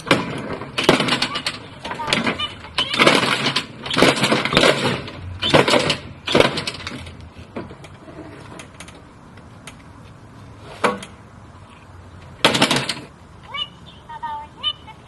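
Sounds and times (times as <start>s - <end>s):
plastic toy breaking: 0.0s - 7.0s, 12.4s - 13.1s.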